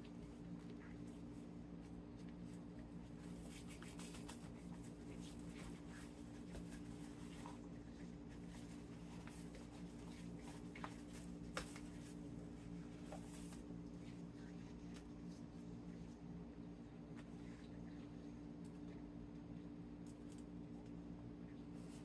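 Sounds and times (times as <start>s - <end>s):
low electrical hum: 0.0s - 22.0s
pastry sheets scratching: 0.8s - 13.7s.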